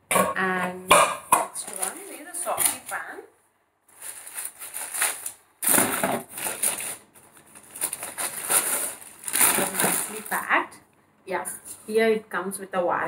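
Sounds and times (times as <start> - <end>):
packaging wrap crinkling: 3.9 - 10.5.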